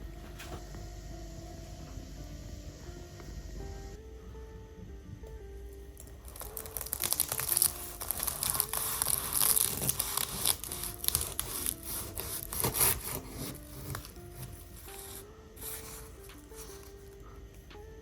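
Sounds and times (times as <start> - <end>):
soft background music: 0.0 - 18.0
pastry crackling and crunching: 6.0 - 17.5.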